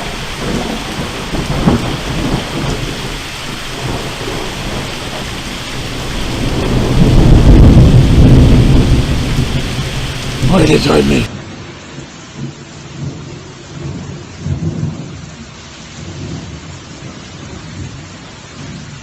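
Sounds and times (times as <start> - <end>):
low rumble of thunder: 0.0 - 19.0
steady rain falling: 0.0 - 19.0.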